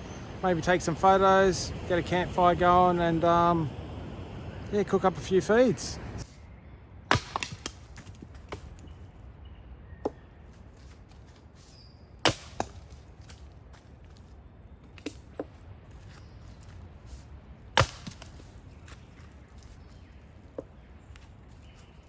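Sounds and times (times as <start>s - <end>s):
firewood being chopped: 7.1s - 8.9s, 12.2s - 13.9s, 14.8s - 16.2s, 17.7s - 19.3s.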